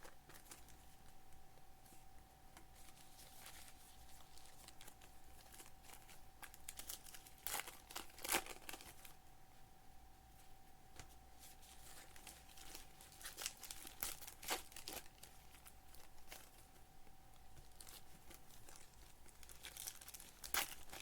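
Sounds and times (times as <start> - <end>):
foil wrappers crinkling and tearing: 0.0 - 0.9, 2.8 - 9.2, 11.4 - 16.8, 17.4 - 21.0.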